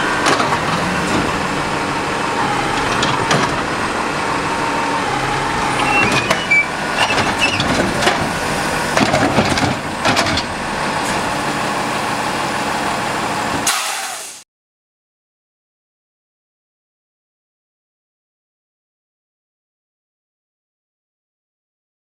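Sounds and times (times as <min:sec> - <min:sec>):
garbage truck engine running: 0:00.0 - 0:14.4
metal clanks and knocks: 0:00.1 - 0:04.3, 0:05.8 - 0:11.5.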